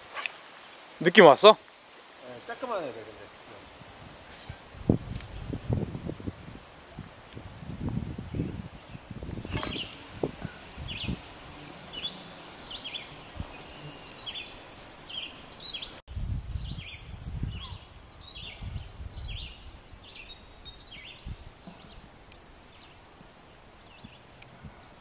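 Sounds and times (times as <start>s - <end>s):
birds chirping: 8.3s - 16.0s, 16.6s - 25.0s.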